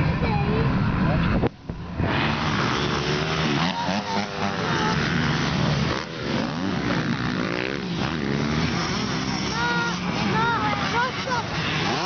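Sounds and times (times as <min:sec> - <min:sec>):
motocross bike engines revving: 0:00.0 - 0:12.0.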